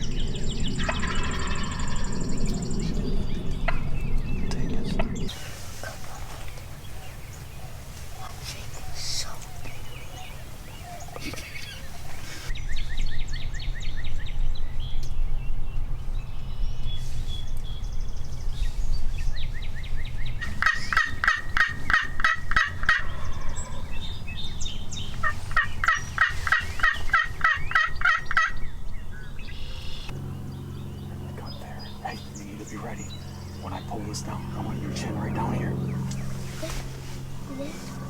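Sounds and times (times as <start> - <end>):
turkey calls: 0.8 - 2.1, 4.5 - 12.5, 20.4 - 23.8, 25.2 - 28.6, 31.1 - 36.9.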